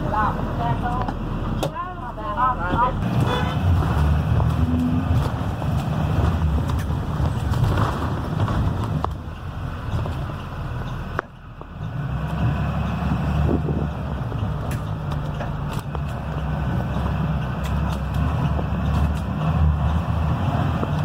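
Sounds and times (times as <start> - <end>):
diesel bus engine rumbling: 0.0 - 21.0
road noise: 0.0 - 21.0.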